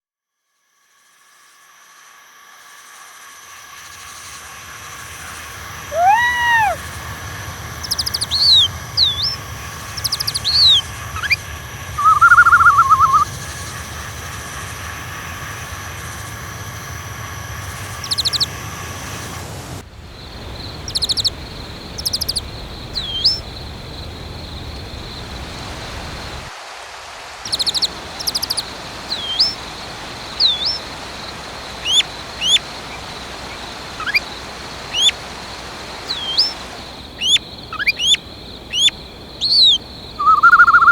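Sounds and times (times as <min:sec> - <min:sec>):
steady background hiss: 0:00.6 - 0:40.9
small birds chirping: 0:04.9 - 0:13.3, 0:17.8 - 0:18.6, 0:20.1 - 0:26.5, 0:27.5 - 0:40.9
bird warbling trill: 0:05.9 - 0:06.8, 0:07.7 - 0:11.4, 0:12.0 - 0:13.3, 0:17.9 - 0:18.5, 0:20.8 - 0:23.6, 0:27.5 - 0:35.2, 0:36.0 - 0:40.9.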